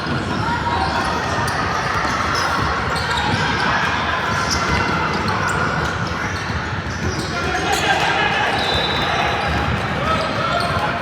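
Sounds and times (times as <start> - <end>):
echoing din of people: 0.0 - 11.0
shoe squeaks: 0.8 - 3.8, 4.5 - 7.8.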